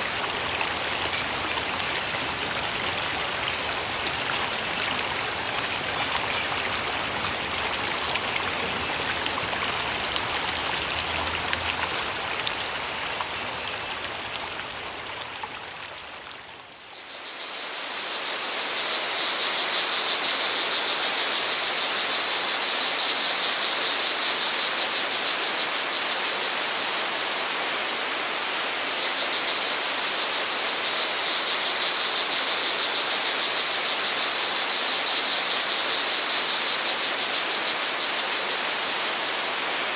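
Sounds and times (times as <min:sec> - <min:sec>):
crickets trilling: 0:00.0 - 0:13.8
rushing stream water: 0:00.0 - 0:39.9.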